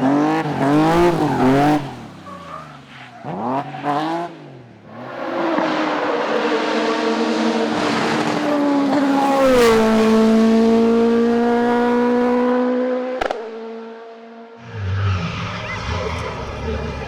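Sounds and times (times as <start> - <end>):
race car passing at full throttle: 4.9 - 17.0.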